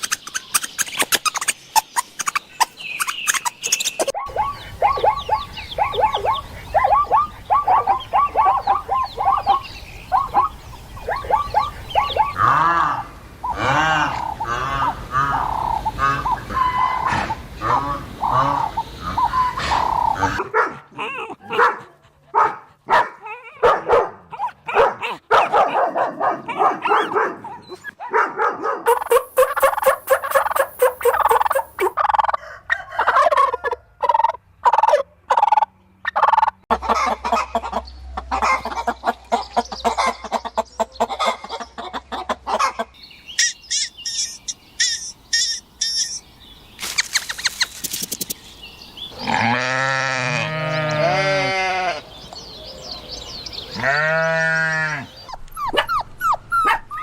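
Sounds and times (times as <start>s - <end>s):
turkeys gobbling: 3.0s - 20.4s, 28.9s - 46.2s.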